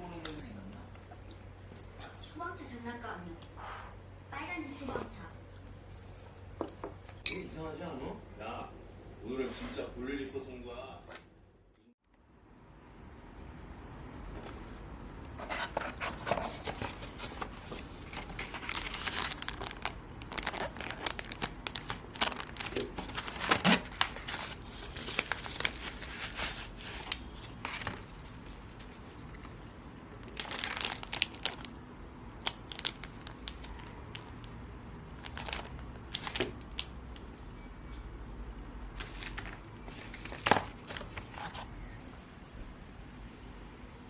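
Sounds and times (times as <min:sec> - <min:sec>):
packaging crinkling and tearing: 0:15.5 - 0:31.8, 0:32.4 - 0:37.3, 0:39.0 - 0:41.6.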